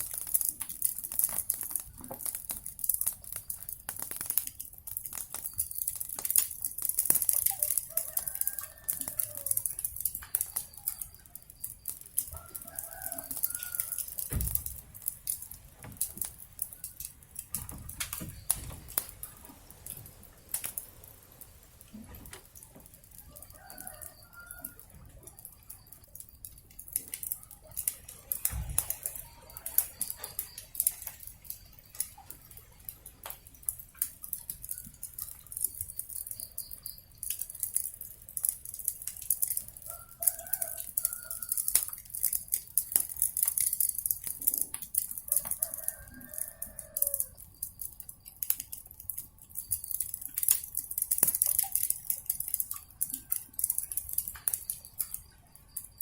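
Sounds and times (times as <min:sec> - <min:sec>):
steady hiss: 0:00.0 - 0:24.4
wood fire crackling and popping: 0:00.0 - 0:56.0.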